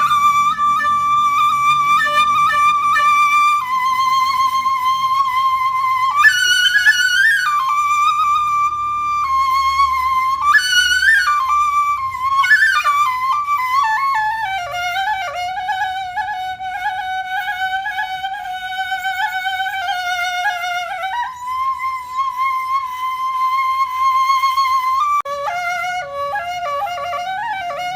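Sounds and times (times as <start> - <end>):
solo flute melody: 0.0 - 27.9.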